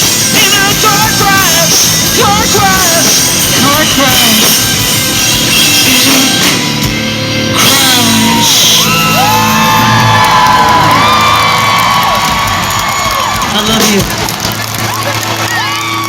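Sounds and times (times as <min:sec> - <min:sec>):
rock band playing loud: 0:00.0 - 0:16.0
singer shouting: 0:00.3 - 0:04.5, 0:07.5 - 0:11.6.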